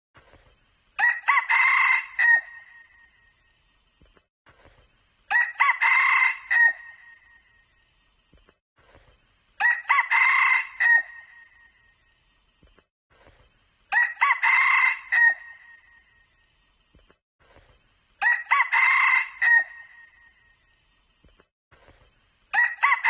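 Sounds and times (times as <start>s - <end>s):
rooster crowing: 1.0s - 2.8s, 5.3s - 7.1s, 9.6s - 11.4s, 13.9s - 15.8s, 18.2s - 20.1s, 22.5s - 23.0s.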